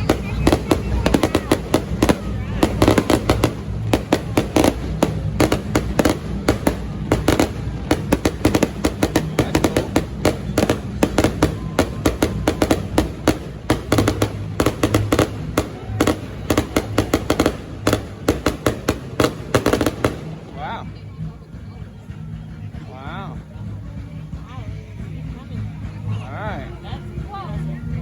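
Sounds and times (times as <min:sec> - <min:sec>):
fireworks bangs and crackles: 0:00.0 - 0:22.3.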